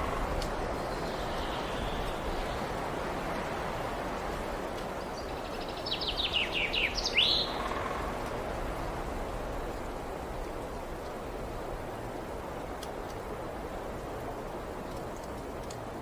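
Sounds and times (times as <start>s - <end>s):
songbird singing: 0.0s - 2.9s, 5.0s - 8.1s.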